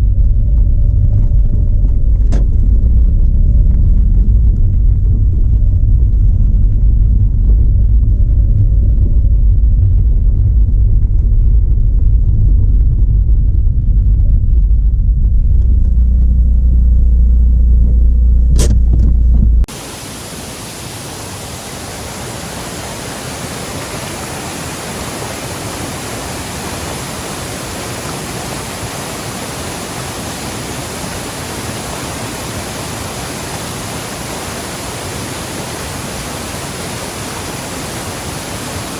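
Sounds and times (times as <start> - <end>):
waterfall rushing: 19.7 - 38.9.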